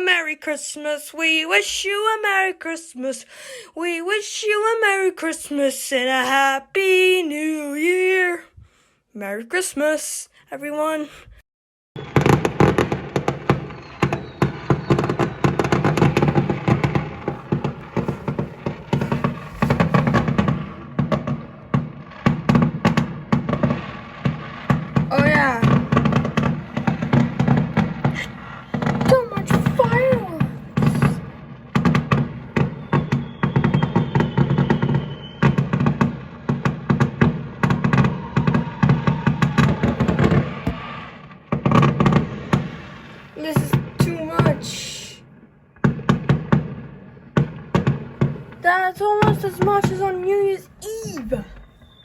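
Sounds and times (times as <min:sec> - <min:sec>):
falling firework whistle: 0:12.0 - 0:21.4, 0:32.6 - 0:37.0, 0:37.6 - 0:41.9, 0:50.8 - 0:52.0
fireworks bangs and crackles: 0:12.0 - 0:52.0.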